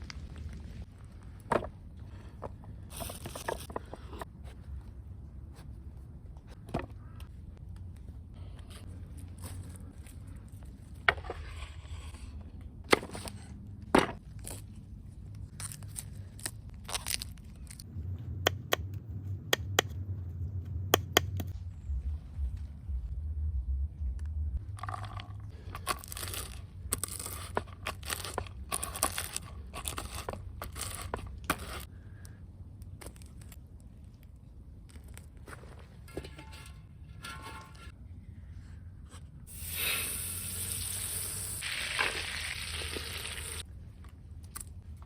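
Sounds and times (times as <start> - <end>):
rough scraping strokes: 36.1 - 38.0.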